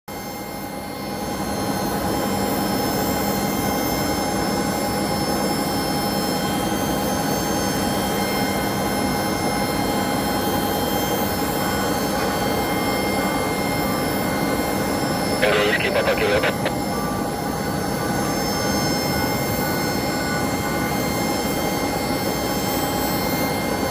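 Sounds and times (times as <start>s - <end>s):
jet engines whining: 15.4s - 16.8s.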